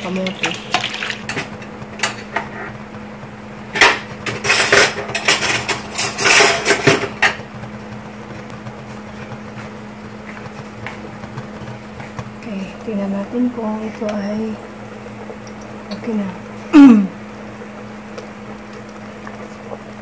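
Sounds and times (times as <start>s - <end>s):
steady low hum: 0.0s - 20.0s
kitchenware metal clattering: 3.7s - 7.4s.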